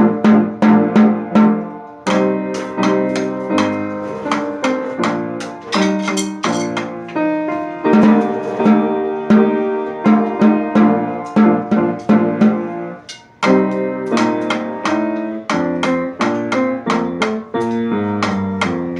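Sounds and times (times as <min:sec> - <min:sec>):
small ensemble instrumental music: 0:00.0 - 0:18.9.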